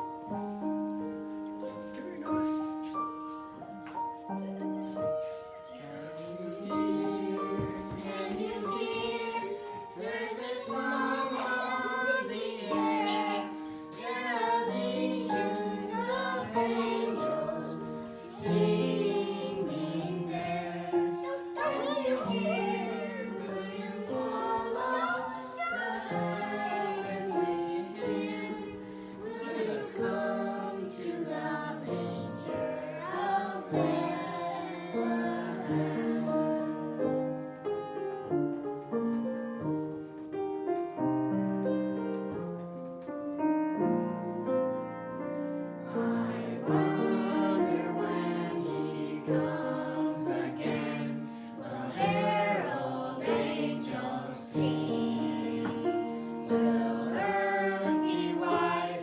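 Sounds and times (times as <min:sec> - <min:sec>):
piano accompaniment: 0:00.0 - 0:59.0
women and children singing: 0:04.4 - 0:37.2, 0:45.8 - 0:59.0.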